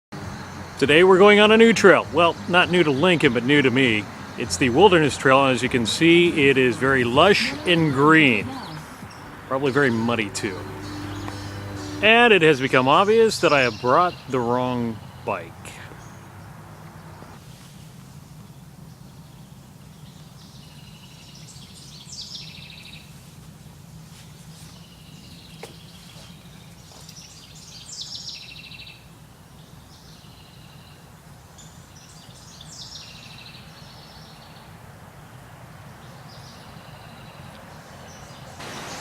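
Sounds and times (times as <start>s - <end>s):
songbird trilling: 4.0s - 17.4s.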